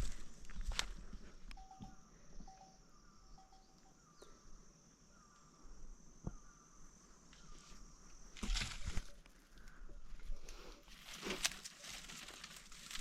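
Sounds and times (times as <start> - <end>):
insects trilling: 0.0 - 13.0
rustling: 10.5 - 13.0.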